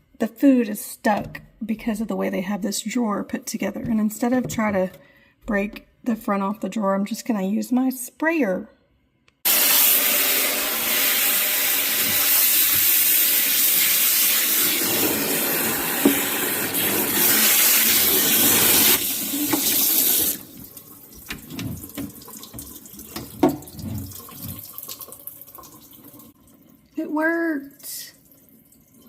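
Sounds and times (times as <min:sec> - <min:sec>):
sink sprayer spraying water: 0:09.5 - 0:24.8
light knocks and clunks: 0:21.2 - 0:24.6.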